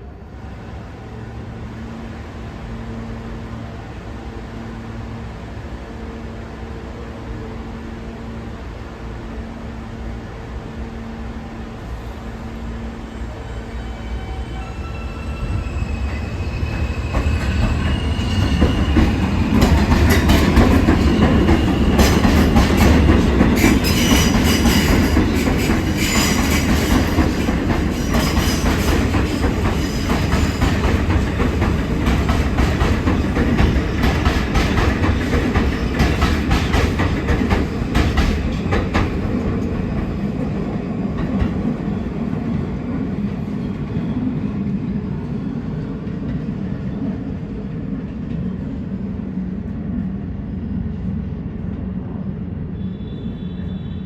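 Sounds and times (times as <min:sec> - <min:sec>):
subway train rumbling: 0:00.0 - 0:54.0
high squeals: 0:13.3 - 0:19.6.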